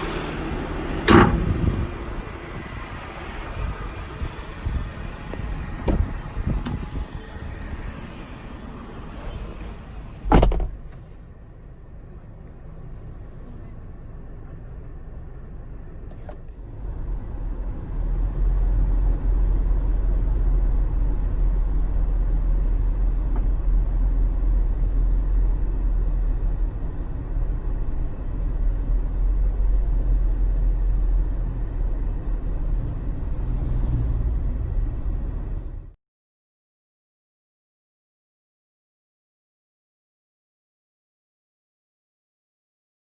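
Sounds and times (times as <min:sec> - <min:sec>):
engine and road rumble: 0:00.0 - 0:36.0.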